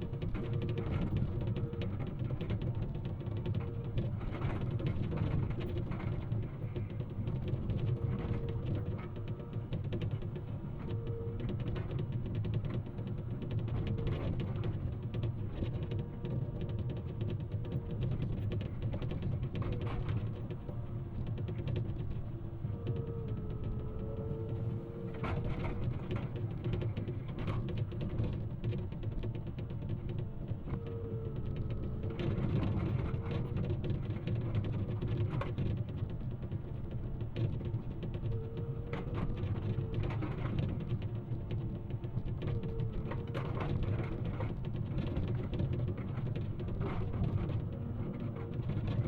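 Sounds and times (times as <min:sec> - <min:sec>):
faint engine whine: 0:00.0 - 0:49.0.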